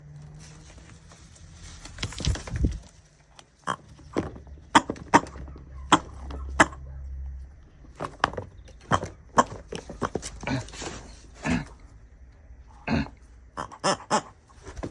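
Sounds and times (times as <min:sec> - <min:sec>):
raven calling: 0:03.6 - 0:12.0, 0:12.6 - 0:14.9.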